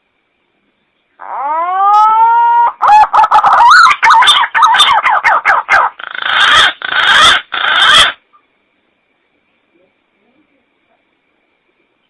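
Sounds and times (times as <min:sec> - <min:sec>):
harsh raspy bird notes: 0:01.2 - 0:08.2.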